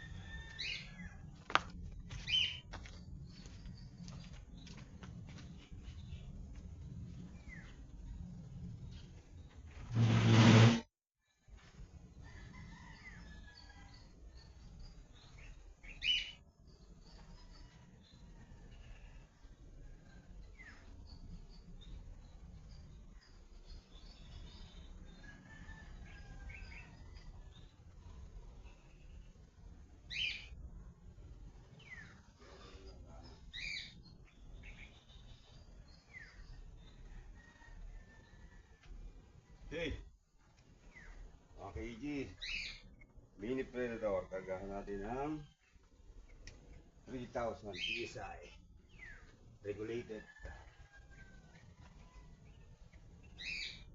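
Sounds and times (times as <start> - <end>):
birds chirping: 2.1 - 10.7, 40.8 - 51.4
bird chirps: 47.1 - 49.3.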